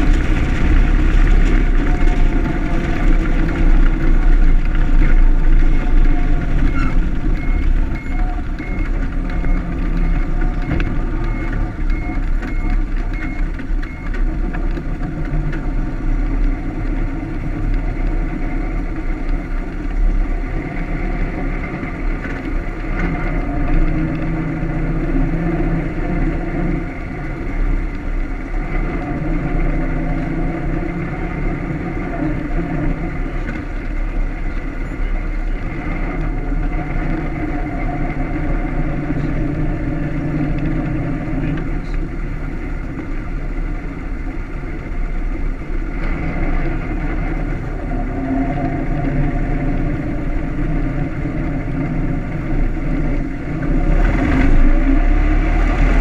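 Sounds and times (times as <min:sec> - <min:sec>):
reversing beeper: 0:00.0 - 0:14.5
old car engine running: 0:00.0 - 0:56.0
wind rumbling on microphone: 0:00.0 - 0:56.0.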